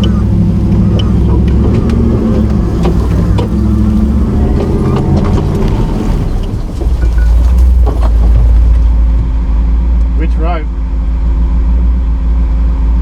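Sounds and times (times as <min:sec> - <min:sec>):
truck knocks and clunks: 0:00.0 - 0:10.2
off-road truck engine running: 0:00.0 - 0:13.0.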